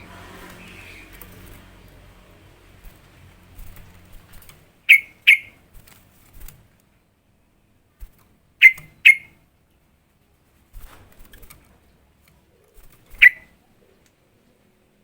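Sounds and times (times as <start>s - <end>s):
bird calling in sharp notes: 4.9s - 5.6s, 8.6s - 9.4s, 13.2s - 13.5s.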